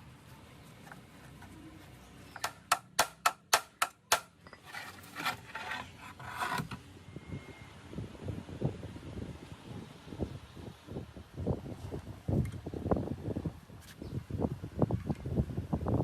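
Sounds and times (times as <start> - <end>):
scraping and rubbing: 4.5 - 6.8.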